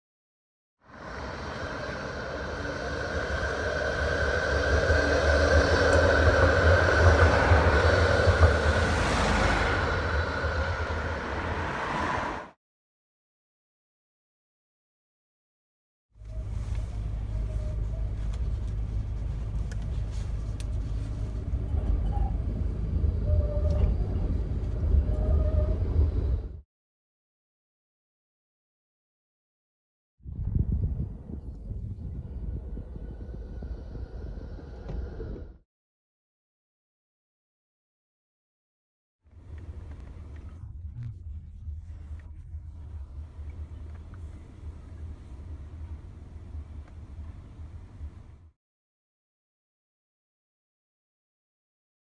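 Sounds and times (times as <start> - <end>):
faint steady whine: 0.9 - 9.2, 30.6 - 35.5
tram rumbling on rails: 0.9 - 12.6, 16.2 - 26.6, 30.3 - 35.6, 39.3 - 48.5
high running hum: 30.3 - 35.5.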